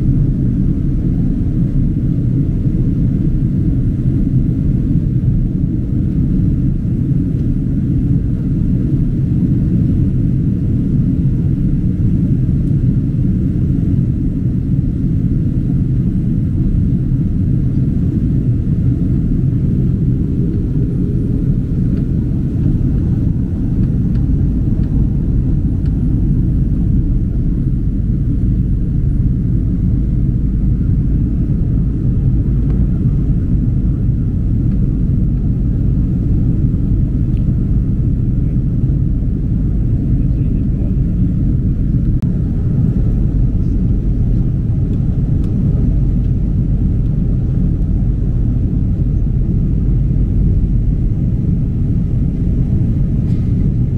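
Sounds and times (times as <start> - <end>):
airliner cabin engine rumble: 0.0 - 53.9.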